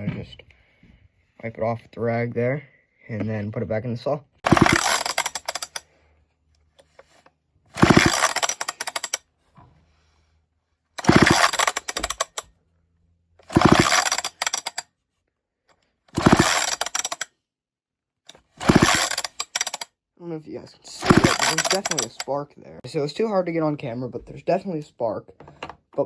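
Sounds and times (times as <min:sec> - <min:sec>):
chainsaw pull starter yanked: 0:04.4 - 0:05.8, 0:06.8 - 0:09.2, 0:11.0 - 0:12.5, 0:13.4 - 0:14.8, 0:16.1 - 0:17.3, 0:18.3 - 0:19.9, 0:21.0 - 0:22.4
engine spinning over: 0:04.5 - 0:05.8, 0:07.8 - 0:09.2, 0:11.0 - 0:12.4, 0:13.5 - 0:14.8, 0:16.2 - 0:17.2, 0:18.6 - 0:19.8, 0:21.0 - 0:22.2.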